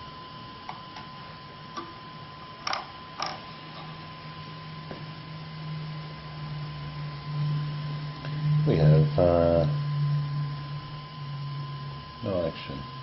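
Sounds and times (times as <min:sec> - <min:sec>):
low hum: 0:00.0 - 0:13.0
steady high-pitched tone: 0:00.0 - 0:13.0.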